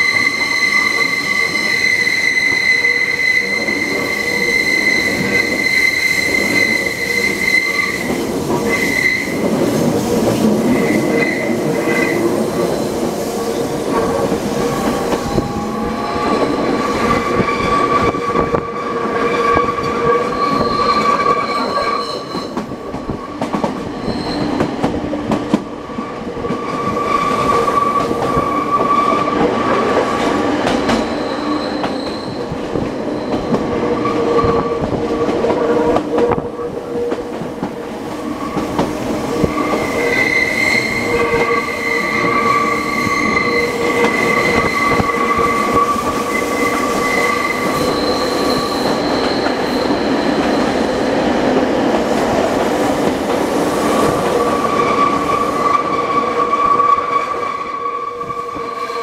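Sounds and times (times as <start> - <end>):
high wheel squeal: 0.0 - 9.5, 14.5 - 22.6, 23.9 - 24.6, 31.1 - 34.8, 39.3 - 51.0
wheels rumbling on rail: 0.0 - 59.0.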